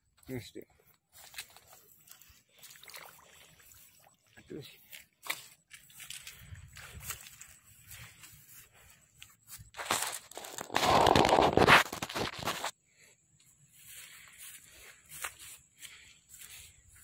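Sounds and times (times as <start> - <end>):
loud rustling close to microphone: 9.7 - 12.7.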